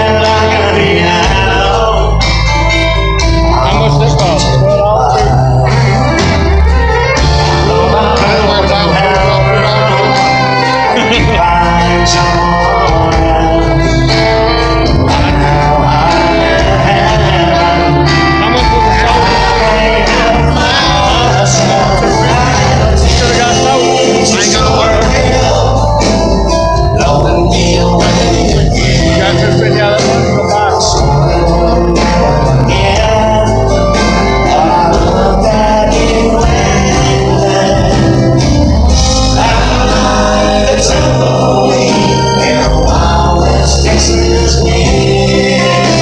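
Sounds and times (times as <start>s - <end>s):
live country band playing: 0.0s - 46.0s.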